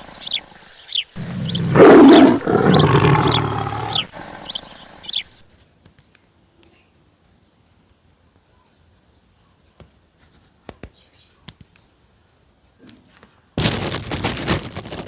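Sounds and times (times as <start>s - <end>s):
big cat roaring: 1.2s - 4.5s.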